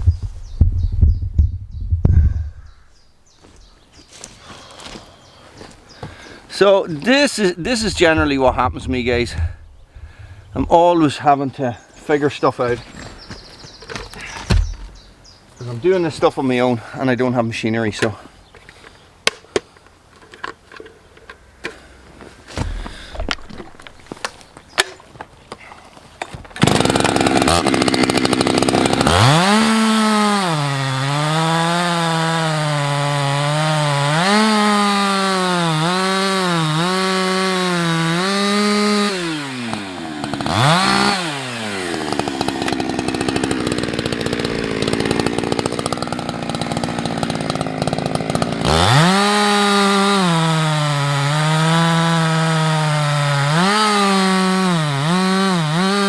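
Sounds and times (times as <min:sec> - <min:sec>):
chainsaw cutting wood: 0:12.6 - 0:15.2, 0:22.5 - 0:25.0, 0:26.2 - 0:56.0.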